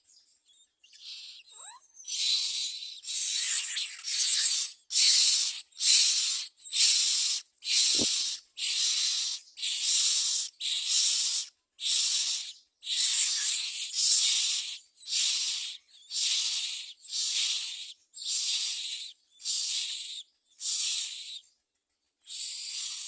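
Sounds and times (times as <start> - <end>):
chicks hissing begging calls: 4.6 - 13.4.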